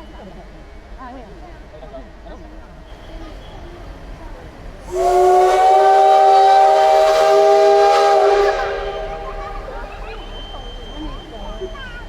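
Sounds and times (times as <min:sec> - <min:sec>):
steam hiss: 0:04.8 - 0:12.0
steam locomotive whistle blast: 0:04.8 - 0:12.0.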